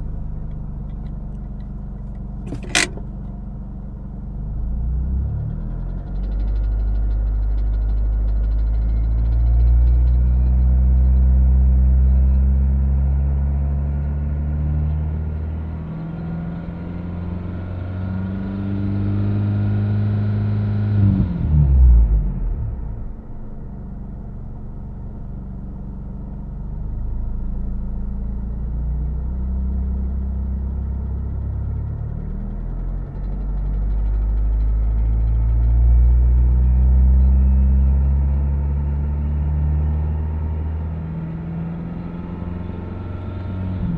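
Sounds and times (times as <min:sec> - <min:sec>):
car engine running: 0:00.0 - 0:11.3, 0:22.0 - 0:39.0.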